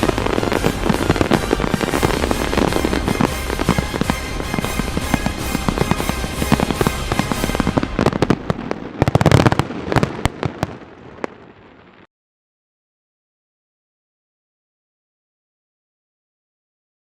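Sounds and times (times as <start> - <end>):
music: 0.0 - 8.5
fireworks crackling and banging: 0.0 - 12.1.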